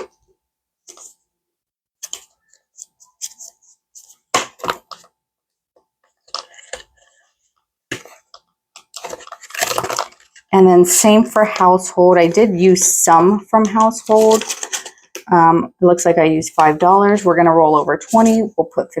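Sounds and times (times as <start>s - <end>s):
paper banknotes rustling: 7.9s - 15.2s.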